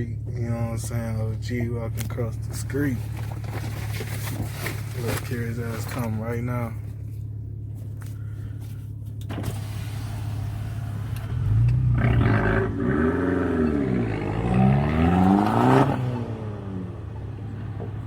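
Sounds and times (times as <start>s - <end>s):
car engine accelerating hard: 9.3s - 18.0s.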